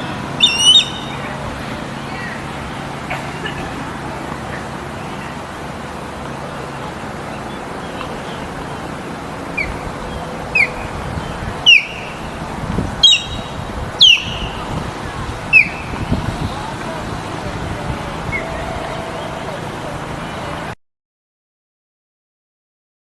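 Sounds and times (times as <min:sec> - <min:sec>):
bird squawking: 0:00.0 - 0:01.2, 0:09.5 - 0:12.3, 0:13.0 - 0:14.6, 0:15.5 - 0:16.0
steady outdoor hiss: 0:00.0 - 0:20.8.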